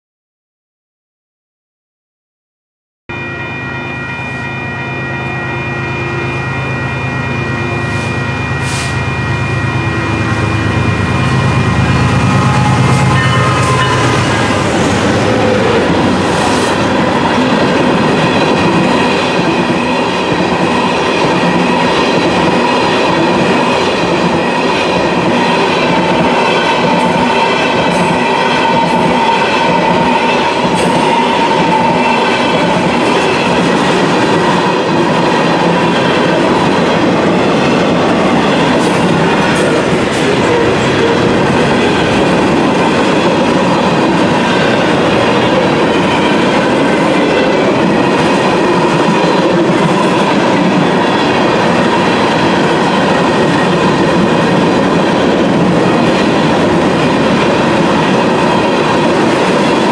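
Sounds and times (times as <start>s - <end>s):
locomotive engine rumble: 38.0s - 46.1s.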